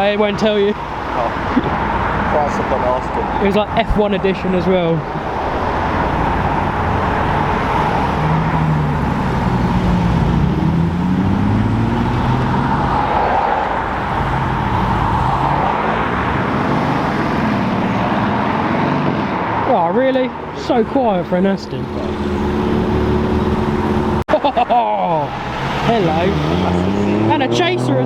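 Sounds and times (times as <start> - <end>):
car engines at low revs: 0.0 - 28.0
road noise: 0.0 - 28.0.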